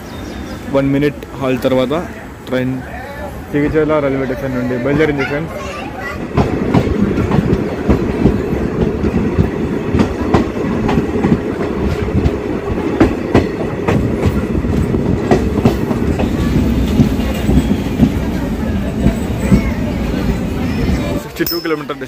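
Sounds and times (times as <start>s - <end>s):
passenger train rumbling: 0.0s - 22.0s.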